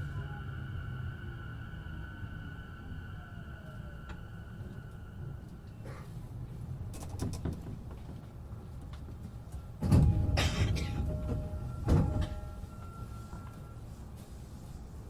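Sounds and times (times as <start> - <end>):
train doors sliding shut with thud: 9.8 - 12.6.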